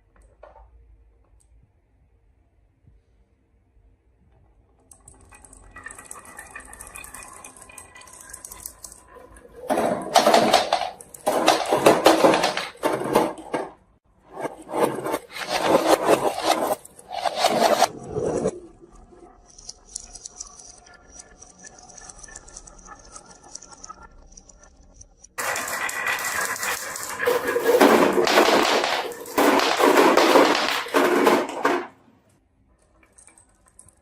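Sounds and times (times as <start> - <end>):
marbles clattering down a marble run: 5.0 - 13.8, 14.7 - 18.5, 25.4 - 32.0.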